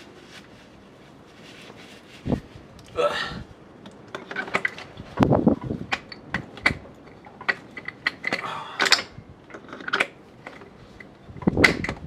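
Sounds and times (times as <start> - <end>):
metal clicks and clacks: 5.6 - 10.7.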